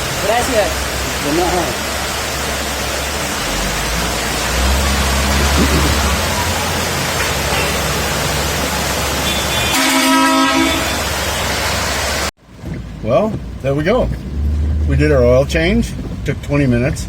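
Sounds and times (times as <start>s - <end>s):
heavy rain hissing: 0.0s - 12.3s
car horn toot: 9.2s - 11.2s.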